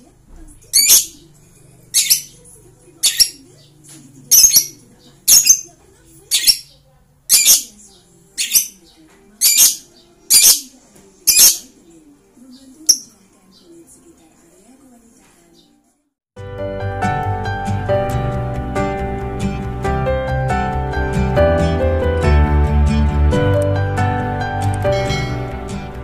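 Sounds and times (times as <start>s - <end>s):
bird shrill chirping calls: 0.8s - 1.2s, 1.9s - 2.4s, 3.0s - 5.7s, 6.3s - 7.8s, 8.4s - 10.7s, 11.3s - 11.7s, 12.9s - 13.2s.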